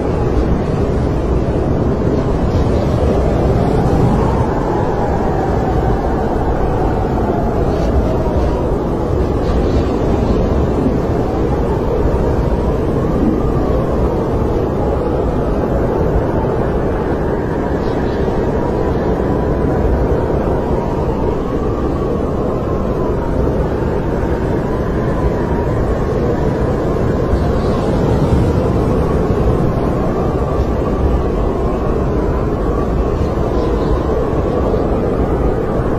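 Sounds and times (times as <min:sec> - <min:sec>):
snowstorm wind rushing: 0:00.0 - 0:35.9.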